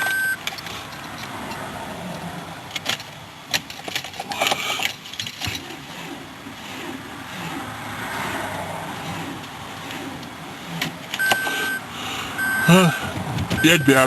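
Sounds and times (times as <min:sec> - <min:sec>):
car keys jangling: 0:00.0 - 0:05.8.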